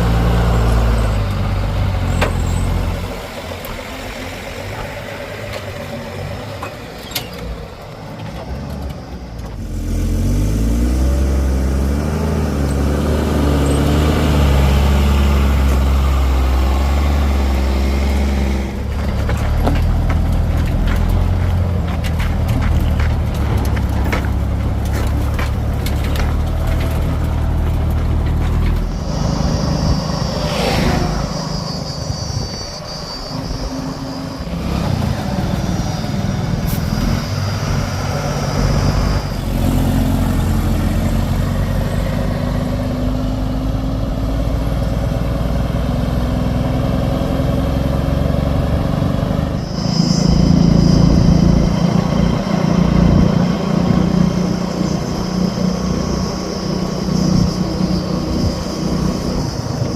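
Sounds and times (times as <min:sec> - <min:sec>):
heavy diesel engine under load: 0:00.0 - 0:59.9
high steady whine: 0:25.9 - 0:41.3, 0:49.4 - 0:59.9.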